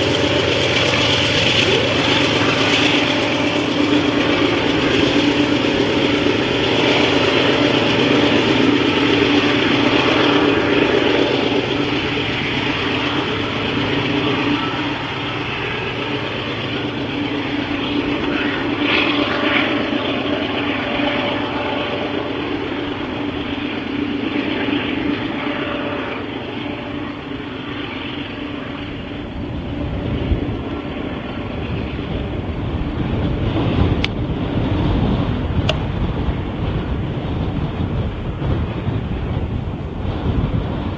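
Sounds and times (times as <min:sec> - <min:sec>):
low hum: 0:00.0 - 0:40.9
train wheels rumbling on rails: 0:00.0 - 0:40.9
wind buffeting microphone: 0:00.0 - 0:40.9.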